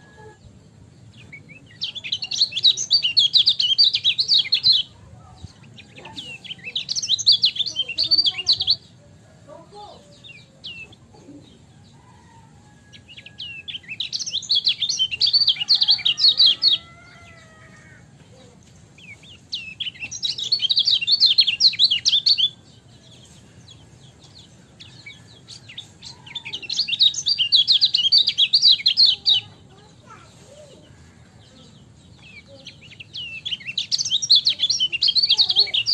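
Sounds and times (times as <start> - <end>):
bird chattering high chirps: 1.2 - 8.9, 13.4 - 17.5, 19.0 - 22.6, 24.8 - 30.2, 32.1 - 35.9.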